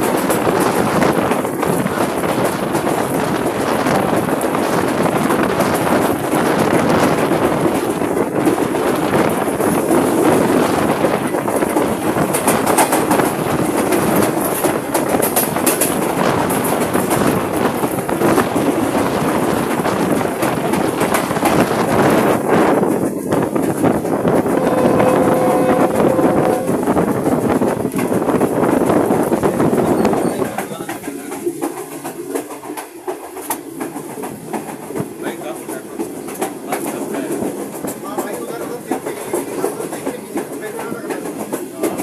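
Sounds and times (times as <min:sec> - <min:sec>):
wind on microphone: 0:00.0 - 0:31.6
train wheels rumbling on rails: 0:00.0 - 0:42.0.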